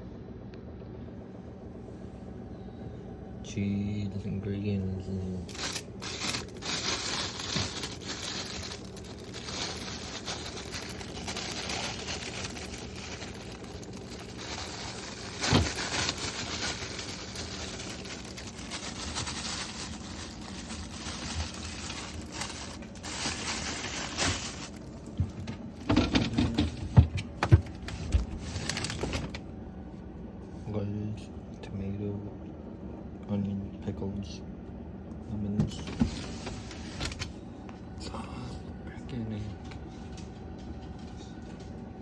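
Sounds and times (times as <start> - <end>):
food packages rustling and scraping: 5.4 - 29.5, 35.7 - 37.4.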